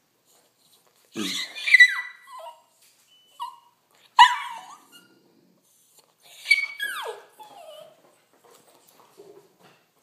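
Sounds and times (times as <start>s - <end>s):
dog whining and yowling: 1.2s - 5.2s, 6.2s - 8.0s.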